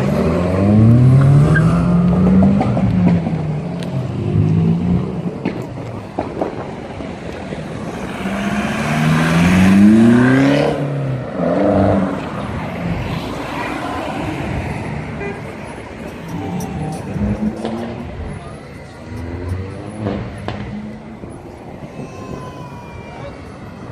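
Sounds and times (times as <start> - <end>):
car engine revving: 7.8 - 15.1.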